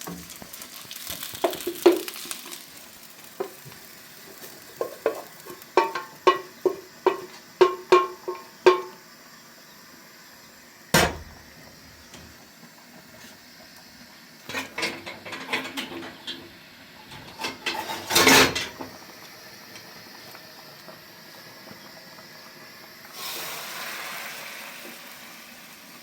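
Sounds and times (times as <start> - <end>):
metal kitchenware clattering: 14.5 - 16.5, 17.1 - 18.8.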